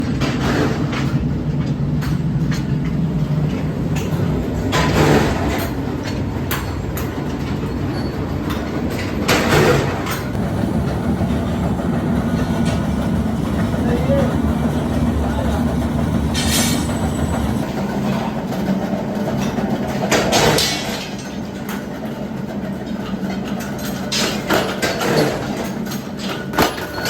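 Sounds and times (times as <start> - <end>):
metallic clanks and knocks: 0.0 - 17.7
heavy machinery rumbling: 0.0 - 20.4.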